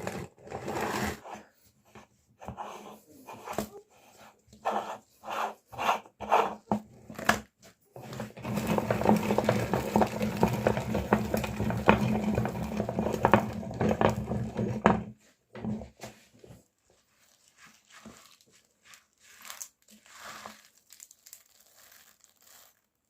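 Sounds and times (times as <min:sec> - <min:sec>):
hard candies crackling crushed: 0:08.4 - 0:14.4, 0:19.1 - 0:23.0.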